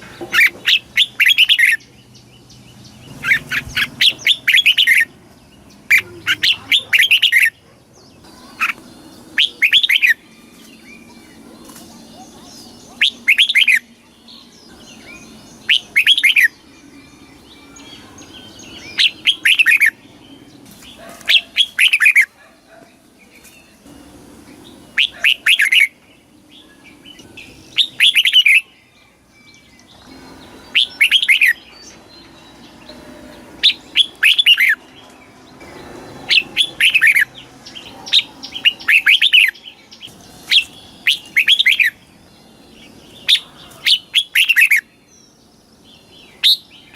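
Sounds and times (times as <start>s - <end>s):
bird singing whistled phrases: 9.4s - 11.1s, 12.9s - 20.0s, 27.2s - 28.7s, 30.6s - 31.7s, 40.5s - 42.0s, 43.2s - 44.9s, 46.4s - 46.9s.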